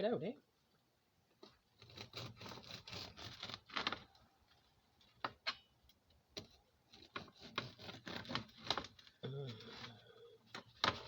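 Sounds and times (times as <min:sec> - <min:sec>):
bread knife sawing through loaf: 0:01.8 - 0:03.7, 0:07.0 - 0:08.6.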